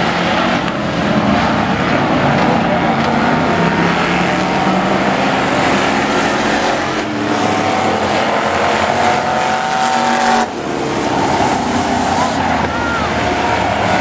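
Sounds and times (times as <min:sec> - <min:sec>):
truck engines at high revs: 0:00.0 - 0:14.0
tire squeal: 0:06.0 - 0:14.0.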